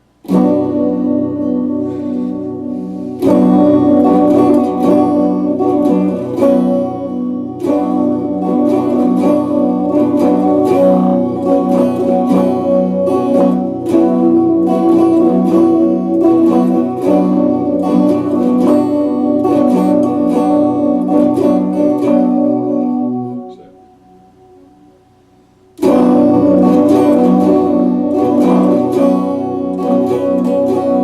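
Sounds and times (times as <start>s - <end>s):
electric guitar chords: 0.0s - 31.0s.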